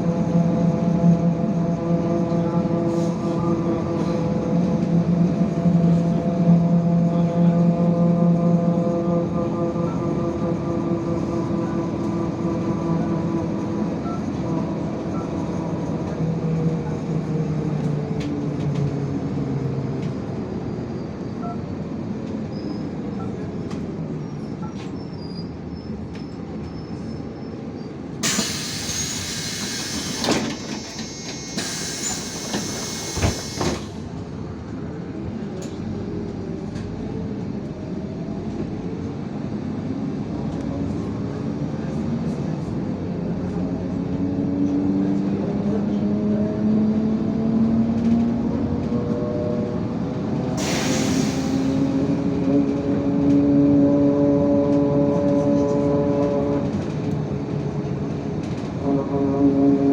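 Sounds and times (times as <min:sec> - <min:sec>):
bus engine: 0:00.0 - 0:59.9
compressed air hiss: 0:28.2 - 0:33.8, 0:50.6 - 0:52.0.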